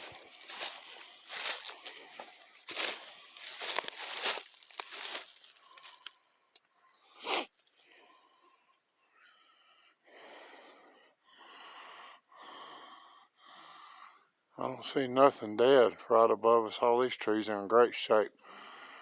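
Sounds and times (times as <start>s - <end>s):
person breathing heavily: 0.0s - 6.3s, 9.2s - 14.2s
rustling: 0.0s - 6.3s.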